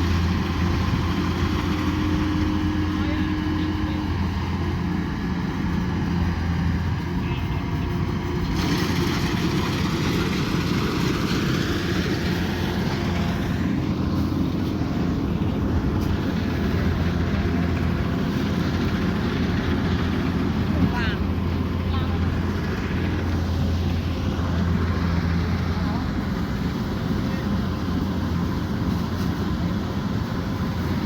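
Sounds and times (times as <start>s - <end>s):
combine harvester running: 0.0s - 31.0s.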